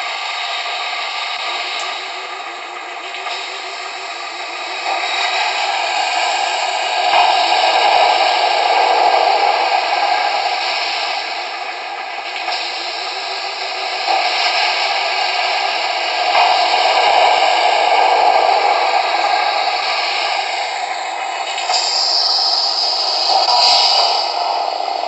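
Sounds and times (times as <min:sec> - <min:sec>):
spraying water and blowers hiss: 0:00.1 - 0:25.0.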